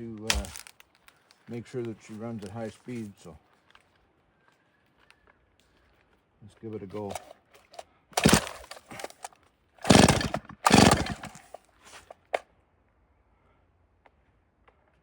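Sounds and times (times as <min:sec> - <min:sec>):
chainsaw starter cord pulls: 0:00.2 - 0:00.8, 0:06.9 - 0:12.4.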